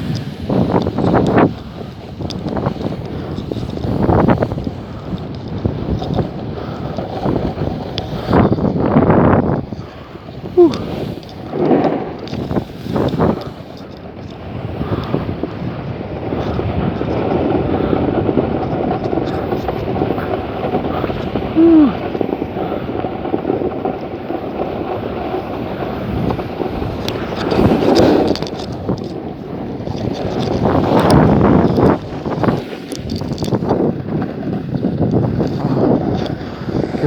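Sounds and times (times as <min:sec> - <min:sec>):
wind rushing over microphone: 0:00.0 - 0:37.0
snowboard hissing on snow: 0:09.8 - 0:13.8, 0:14.4 - 0:32.9.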